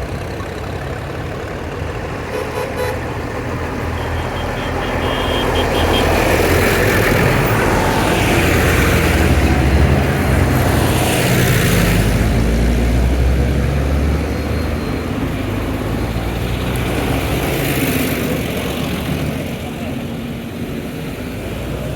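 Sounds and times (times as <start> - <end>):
tractor engines driving past: 0.0 - 21.9.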